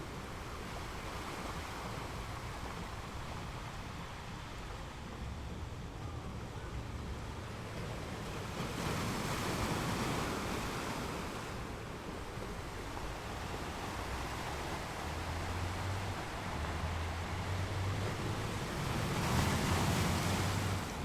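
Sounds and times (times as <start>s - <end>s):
sea waves breaking on shore: 6.8s - 21.0s.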